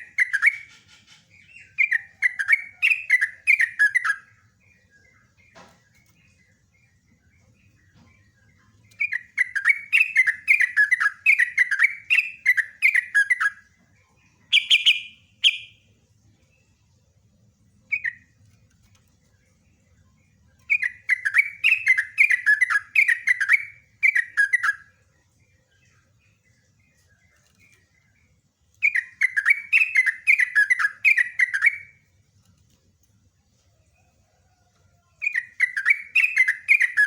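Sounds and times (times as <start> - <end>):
bulbul singing falling chirps: 14.5 - 15.8.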